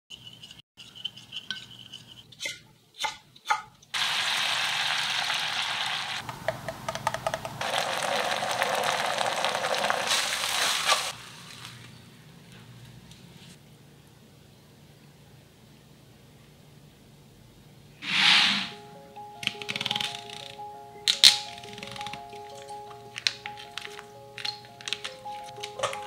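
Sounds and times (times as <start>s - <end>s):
batter sizzling in hot pan: 4.0s - 6.2s, 7.6s - 11.2s.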